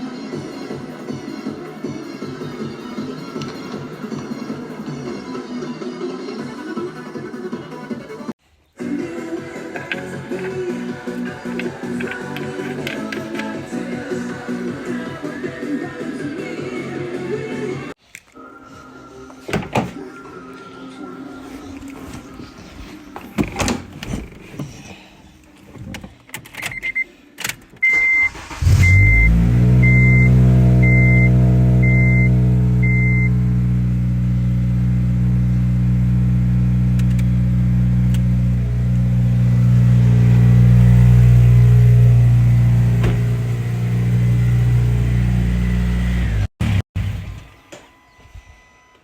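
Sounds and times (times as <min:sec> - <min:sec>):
car engine starting and idling: 0:27.8 - 0:47.5.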